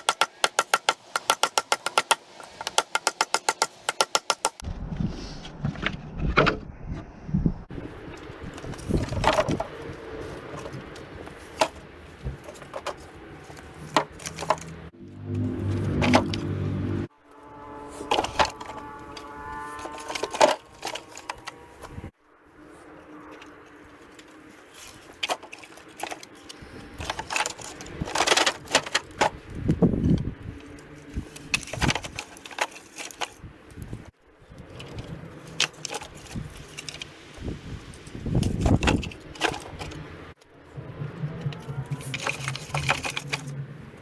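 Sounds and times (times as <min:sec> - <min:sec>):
wood splitting knocks and cracks: 0:00.0 - 0:04.6, 0:08.5 - 0:14.8, 0:15.9 - 0:16.6, 0:18.1 - 0:22.1, 0:24.8 - 0:34.1, 0:35.5 - 0:37.6, 0:38.2 - 0:40.1, 0:42.0 - 0:43.5.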